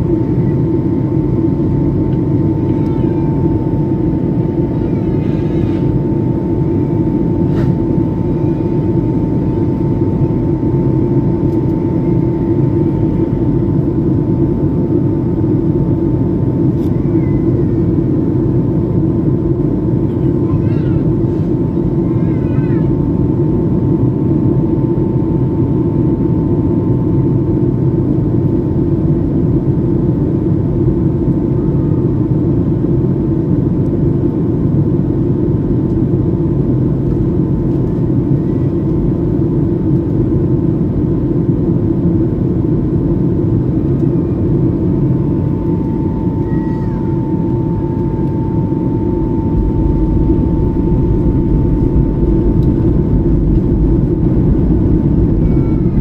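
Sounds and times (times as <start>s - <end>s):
jet engines rumbling: 0.0s - 56.0s
thin steady whine: 35.9s - 56.0s.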